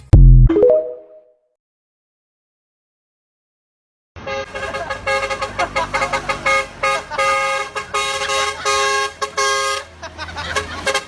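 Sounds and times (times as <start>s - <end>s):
truck horns honking: 4.2s - 11.0s.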